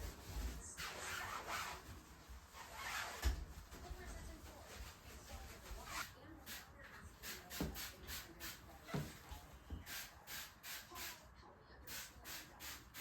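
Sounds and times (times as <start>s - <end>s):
brush scrubbing bathtub: 0.0s - 11.3s.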